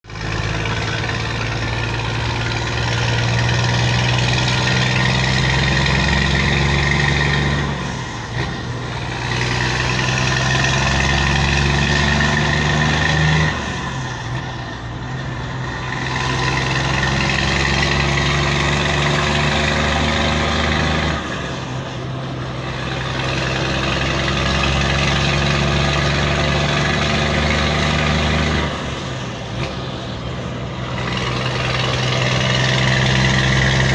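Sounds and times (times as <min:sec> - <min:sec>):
truck diesel engine running: 0:00.0 - 0:33.9.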